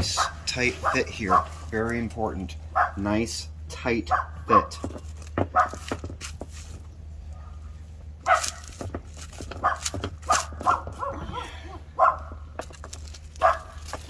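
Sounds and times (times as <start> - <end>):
steady low hum: 0.0 - 14.0
dog barking: 0.1 - 1.6, 2.8 - 3.0, 4.1 - 4.4, 5.5 - 5.8, 8.2 - 8.6, 9.6 - 11.4, 12.0 - 12.4, 13.4 - 13.8.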